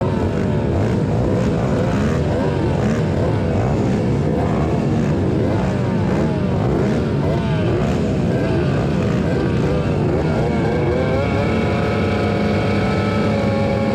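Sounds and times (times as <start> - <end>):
dirt bike engines revving: 0.0 - 13.9.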